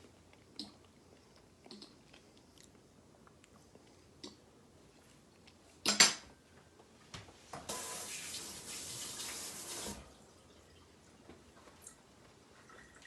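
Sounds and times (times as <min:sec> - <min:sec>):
water running: 0:07.7 - 0:11.2.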